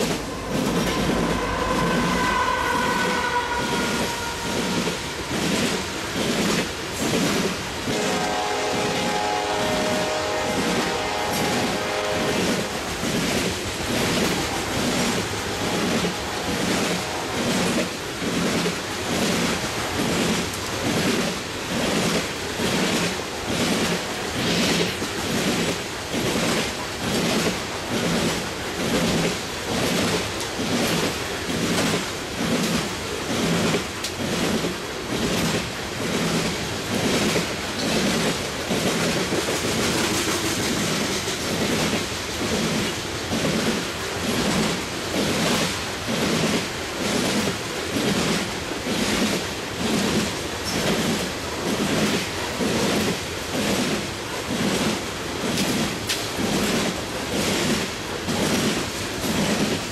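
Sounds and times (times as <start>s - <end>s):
rolling freight cars rumble: 0.0s - 59.9s
wheels clicking over rail joints: 20.1s - 59.9s.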